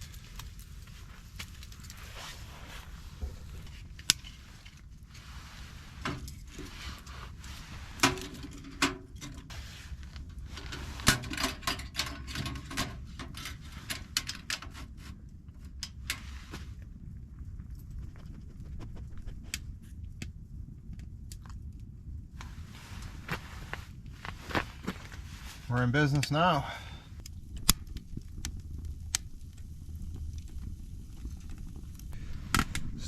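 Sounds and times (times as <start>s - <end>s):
wood and metal knocks and scrapes: 7.9s - 9.6s.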